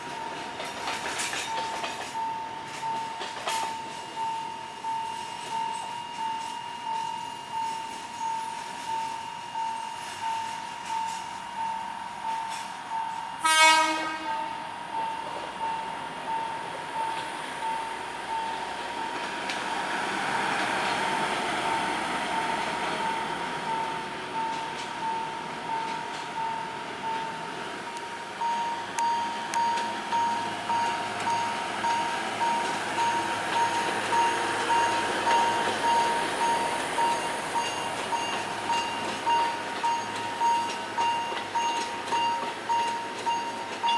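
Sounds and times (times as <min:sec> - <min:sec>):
train horn blast: 0:13.4 - 0:14.6
train rumbling past: 0:13.4 - 0:43.9
level crossing bell ringing: 0:25.7 - 0:43.9.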